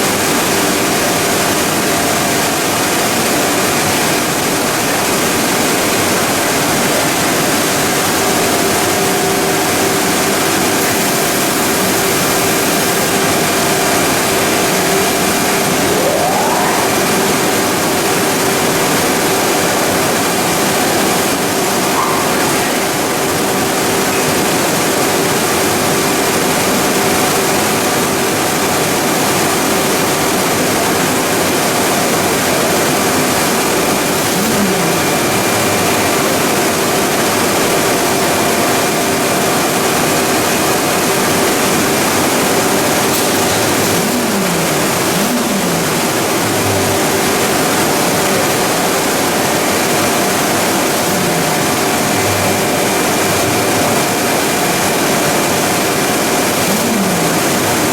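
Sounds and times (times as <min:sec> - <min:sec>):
machinery hum and whine: 0:00.0 - 0:57.9
low tones dipping in pitch: 0:14.8 - 0:18.9.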